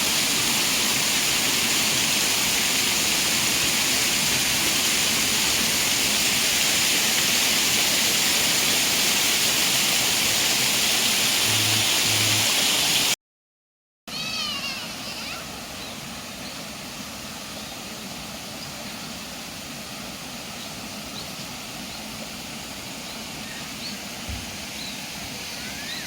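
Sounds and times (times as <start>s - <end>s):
rushing water: 0.0s - 13.2s, 14.1s - 26.0s.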